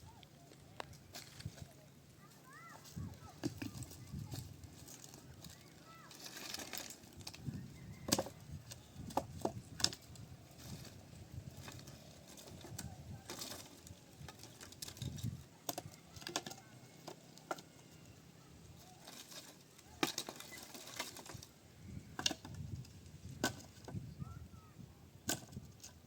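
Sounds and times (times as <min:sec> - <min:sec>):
faint bird chirps: 0:24.0 - 0:25.2.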